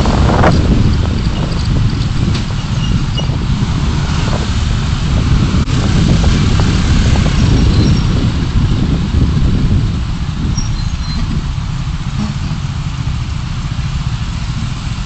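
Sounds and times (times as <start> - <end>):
car engine rumble: 0.0 - 15.0
road noise: 0.0 - 15.0.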